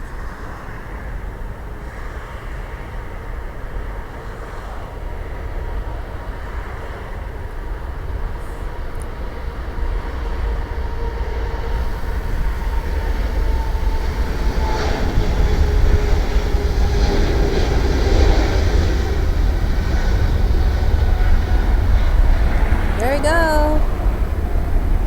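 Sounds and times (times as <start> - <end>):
jet engine whine: 10.7 - 23.0
jet engine rumble: 11.8 - 25.0.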